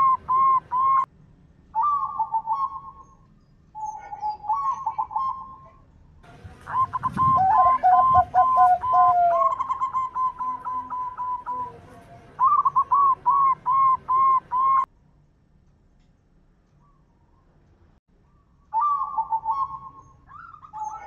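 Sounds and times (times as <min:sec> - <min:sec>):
dove cooing whistle-like notes: 0:00.0 - 0:01.1, 0:01.8 - 0:03.2, 0:03.8 - 0:05.8, 0:06.6 - 0:14.9, 0:18.3 - 0:21.0
lower dove notes: 0:00.0 - 0:01.1, 0:01.7 - 0:14.9, 0:18.2 - 0:21.0.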